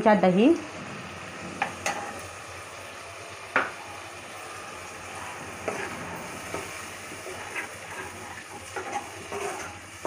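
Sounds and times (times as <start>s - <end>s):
masala sizzling in oil: 0.0s - 10.0s
spoon stirring and scraping pan: 1.6s - 2.3s, 5.1s - 10.0s.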